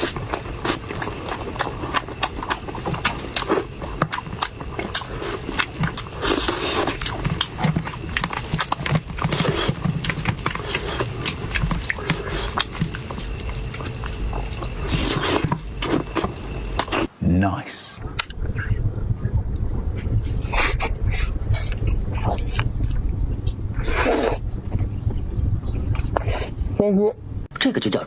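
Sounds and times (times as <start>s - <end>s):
person biting and chewing food: 0.0s - 17.1s
mouth clicks and smacks: 20.3s - 26.3s.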